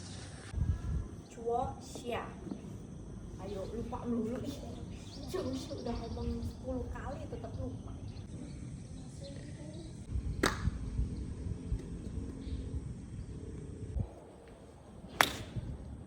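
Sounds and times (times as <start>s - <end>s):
steady low rumble: 0.0s - 16.0s
sharp cracks: 10.4s - 10.8s, 15.2s - 15.6s.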